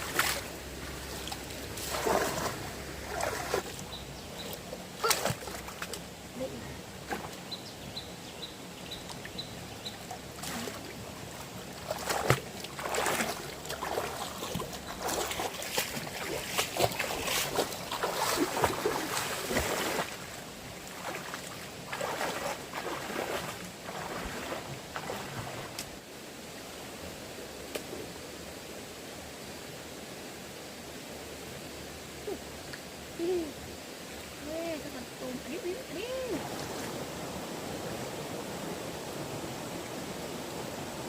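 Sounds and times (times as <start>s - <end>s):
water splashing and sloshing: 0.0s - 7.5s, 8.9s - 26.1s, 34.0s - 41.0s.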